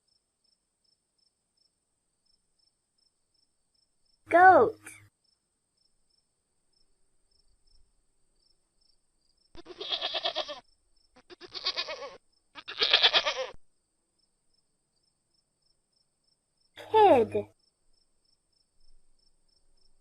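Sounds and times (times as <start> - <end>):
goat bleating: 9.6 - 10.6, 11.2 - 13.6.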